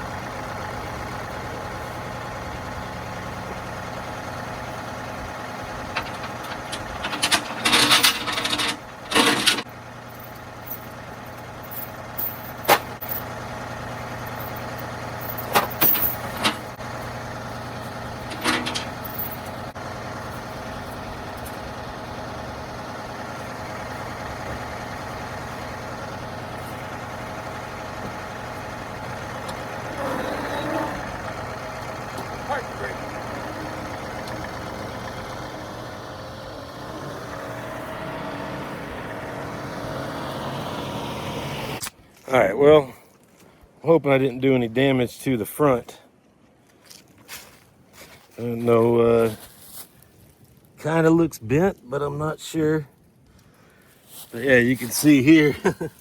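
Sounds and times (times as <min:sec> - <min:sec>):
engine idling: 0:00.0 - 0:42.4
metal parts clanking and rattling: 0:05.8 - 0:13.3, 0:14.1 - 0:16.8, 0:18.1 - 0:19.7.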